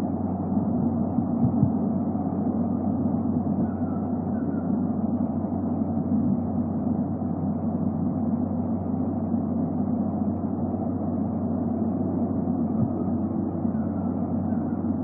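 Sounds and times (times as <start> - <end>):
faint hum: 0.0 - 15.0
steady low rumble: 0.0 - 15.0.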